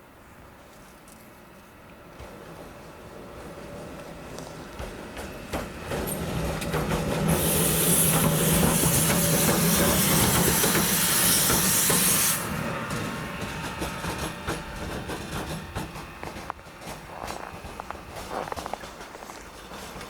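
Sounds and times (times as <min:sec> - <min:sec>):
train air venting hiss: 0:04.6 - 0:20.0.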